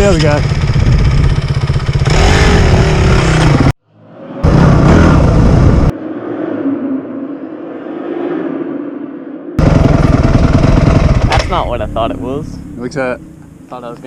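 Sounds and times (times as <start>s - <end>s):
dirt bike engines revving: 0.0s - 3.7s, 4.4s - 5.9s, 9.6s - 14.0s.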